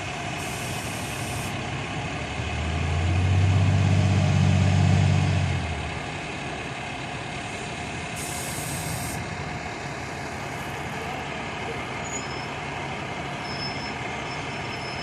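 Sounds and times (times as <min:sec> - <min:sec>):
fire truck diesel engine: 0:00.0 - 0:15.0
heavy engines idling: 0:00.0 - 0:15.0
air brake hiss: 0:08.2 - 0:09.2.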